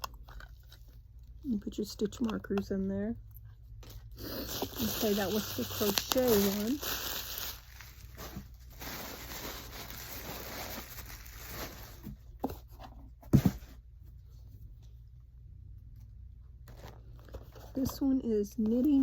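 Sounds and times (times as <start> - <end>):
packaging rustling and crinkling: 4.2 - 12.4.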